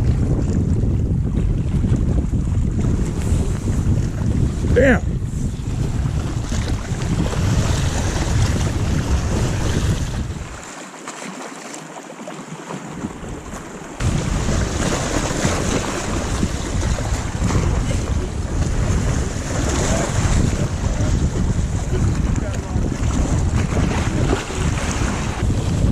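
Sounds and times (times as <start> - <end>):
wind buffeting microphone: 0.0 - 10.7, 12.9 - 25.9
waves washing on lake: 0.0 - 25.9.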